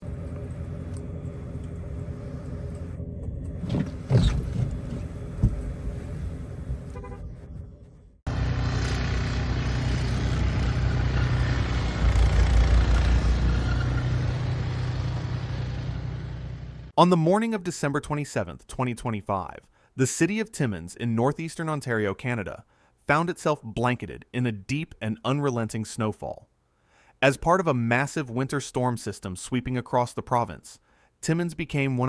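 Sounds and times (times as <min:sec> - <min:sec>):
road vehicle sounds: 0:00.0 - 0:16.9
engine and road rumble: 0:00.0 - 0:17.0
car horn toot: 0:06.9 - 0:07.4.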